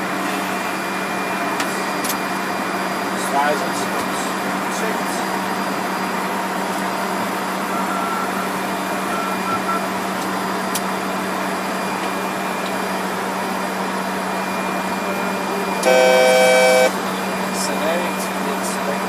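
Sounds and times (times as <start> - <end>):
cockpit airflow and air conditioning: 0.0 - 19.0
faint high beeps: 7.7 - 10.0
steady low hum: 12.9 - 19.0.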